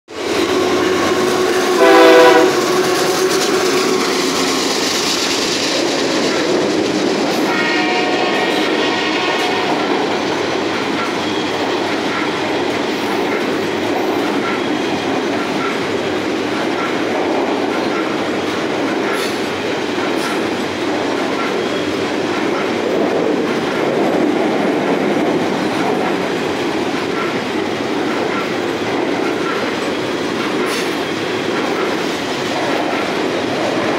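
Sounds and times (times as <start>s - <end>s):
freight train rumbling and rattling: 0.1s - 33.9s
train air horn: 0.4s - 4.1s, 7.5s - 10.3s.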